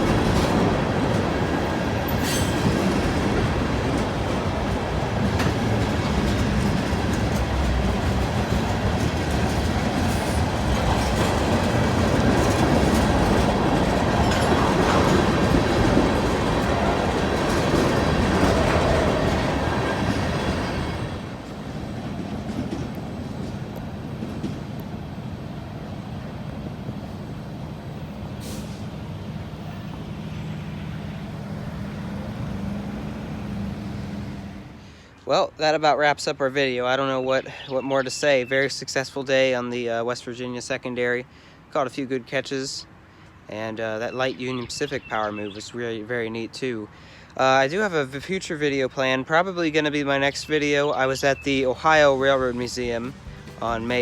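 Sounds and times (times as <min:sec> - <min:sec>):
freight train wheels clattering: 0:00.0 - 0:26.0, 0:51.2 - 0:54.0.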